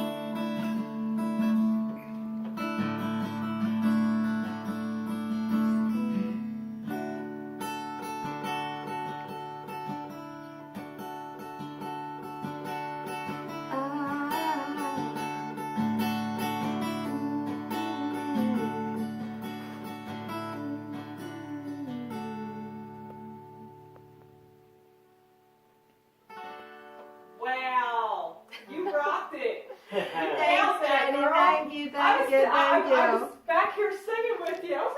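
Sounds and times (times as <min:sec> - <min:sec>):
acoustic guitar strumming: 0:00.0 - 0:27.4.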